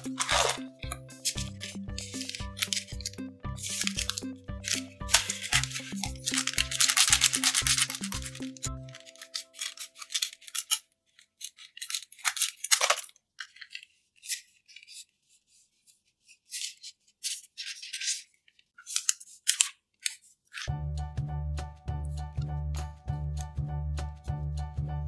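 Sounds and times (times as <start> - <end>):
background music with a beat: 0.0 - 9.1, 20.7 - 25.0
card packs crinkling and tearing: 0.0 - 15.1, 16.5 - 20.7.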